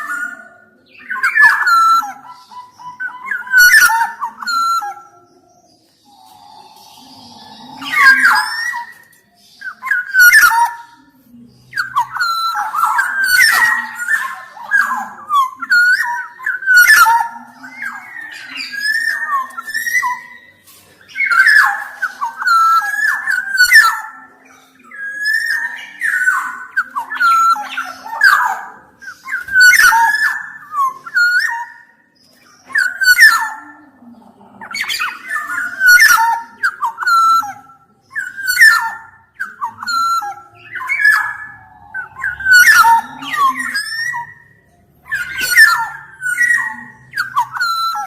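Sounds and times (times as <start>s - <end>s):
bird singing whistled notes: 0.0s - 33.7s, 34.7s - 48.0s.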